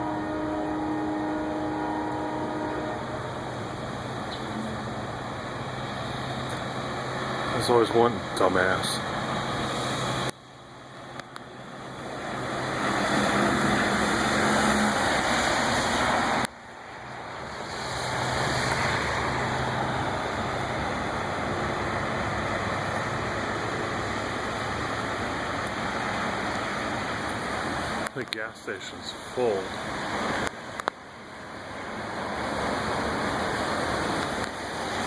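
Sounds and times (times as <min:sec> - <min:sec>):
water rushing and tyre spray: 0:00.0 - 0:35.0
low engine hum: 0:02.1 - 0:28.3.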